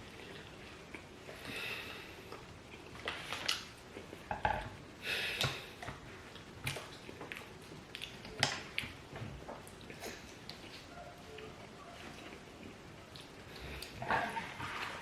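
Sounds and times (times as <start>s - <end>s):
chewing: 0.0s - 4.3s, 5.3s - 15.0s
clicks and scrapes on plates: 13.8s - 15.0s.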